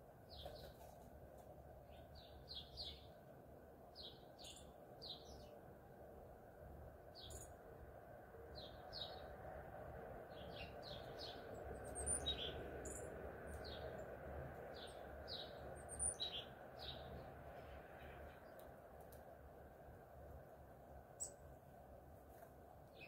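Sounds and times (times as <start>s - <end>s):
low background noise: 0.0s - 23.0s
small birds chirping: 0.2s - 1.0s, 1.8s - 3.3s, 3.9s - 5.7s, 7.1s - 7.6s, 8.5s - 9.4s, 10.2s - 19.3s, 21.1s - 21.6s, 22.3s - 23.0s.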